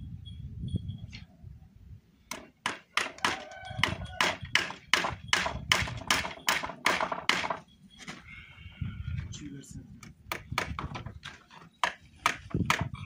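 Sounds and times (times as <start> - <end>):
hammer driving nails into wood: 2.3 - 7.6, 10.3 - 12.9
nail ringing: 2.3 - 8.1.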